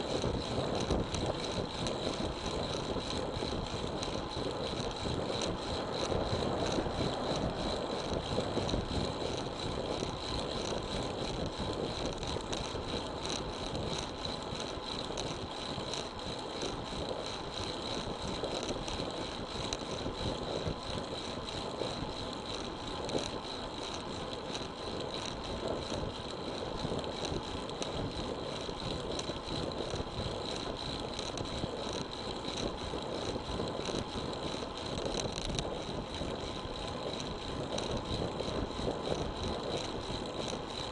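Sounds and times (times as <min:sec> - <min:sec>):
wind buffeting microphone: 0:00.0 - 0:14.2
tyre and road noise: 0:04.0 - 0:10.7.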